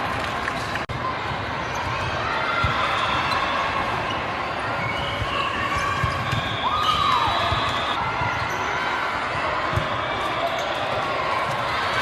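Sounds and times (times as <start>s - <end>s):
crowd chatter: 0.0s - 12.0s.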